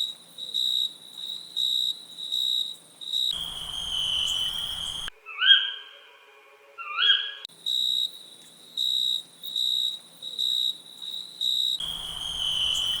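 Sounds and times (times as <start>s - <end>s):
insects chirping: 0.0s - 5.1s, 7.5s - 13.0s
short rising whistled calls: 3.4s - 6.0s, 11.8s - 13.0s.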